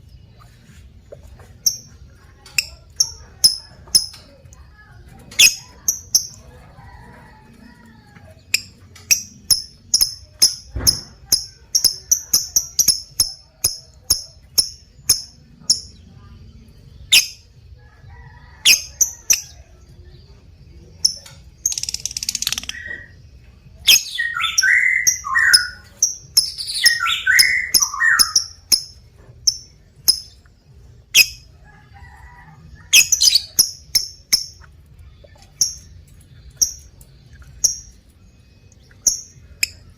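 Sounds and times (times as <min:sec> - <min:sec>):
bird chirping and screeching: 0:23.9 - 0:28.8, 0:32.9 - 0:33.8.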